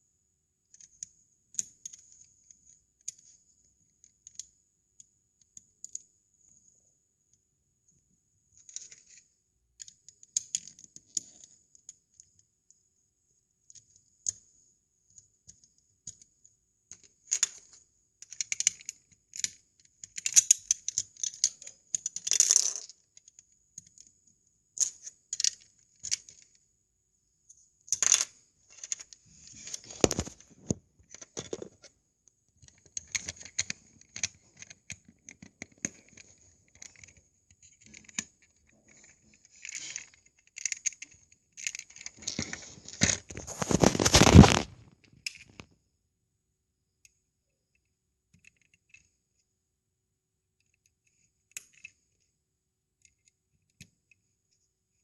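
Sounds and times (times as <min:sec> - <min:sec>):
plastic bricks clicking: 0:29.6 - 0:31.8.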